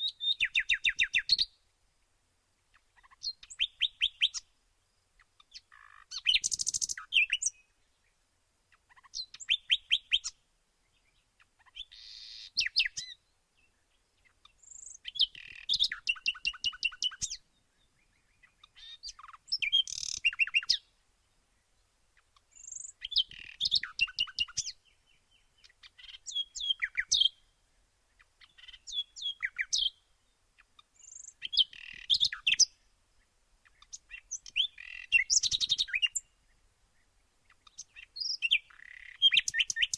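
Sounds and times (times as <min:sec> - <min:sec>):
songbird chirping phrase: 0:00.0 - 0:39.9.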